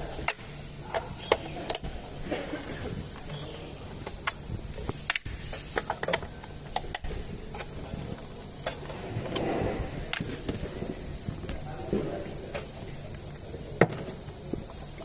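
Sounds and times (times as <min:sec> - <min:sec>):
low steady hum: 0:00.0 - 0:15.0
brief hiss: 0:05.3 - 0:05.9.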